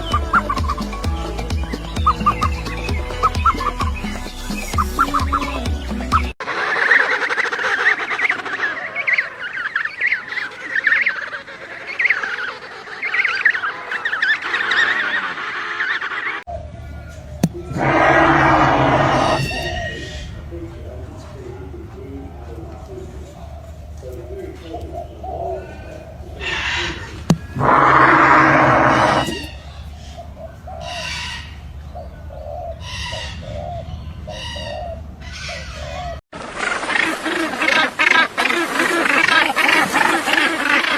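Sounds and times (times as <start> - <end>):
bird cooing: 0.0 - 1.0, 21.5 - 36.2
flock of birds calling: 0.0 - 40.9.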